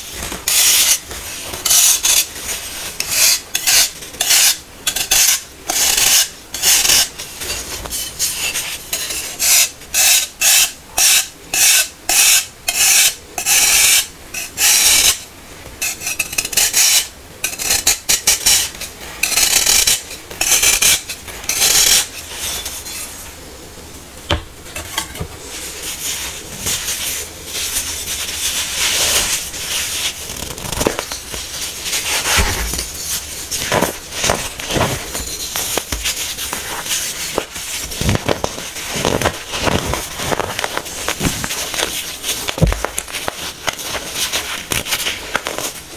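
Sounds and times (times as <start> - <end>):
powder crumbling and grinding: 30.4 - 45.8.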